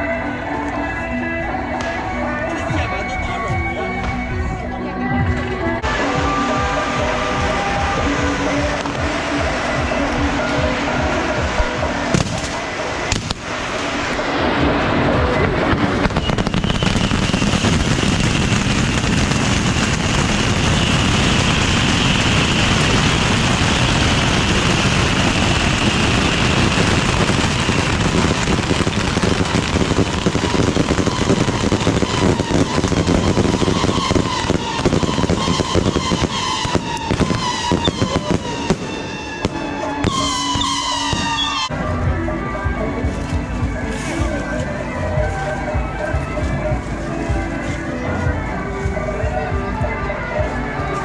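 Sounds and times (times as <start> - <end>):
gliding rocket whistles: 13.4 - 41.7
steady high whistle: 16.1 - 18.7, 33.1 - 41.7.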